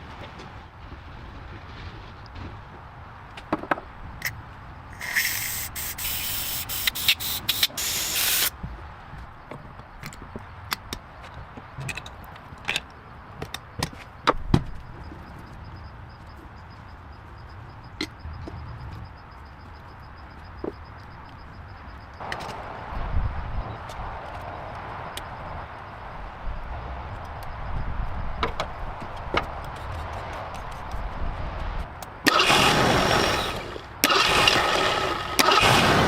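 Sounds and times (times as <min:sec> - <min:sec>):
pressurised spray hissing: 0:05.0 - 0:08.5.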